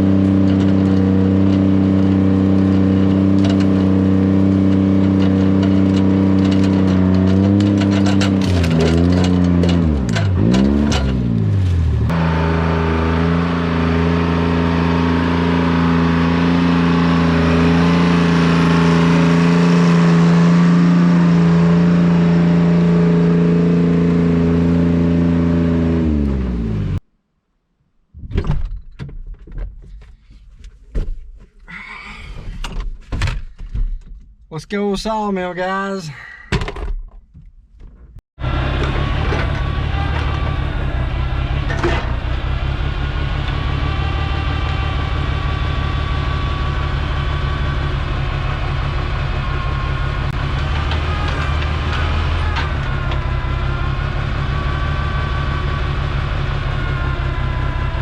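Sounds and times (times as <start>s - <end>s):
knocks and clunks: 0.0s - 12.2s, 28.2s - 31.6s, 32.3s - 34.5s, 36.5s - 43.8s, 48.8s - 53.6s
vehicle engine revving: 0.0s - 27.0s, 38.4s - 58.0s.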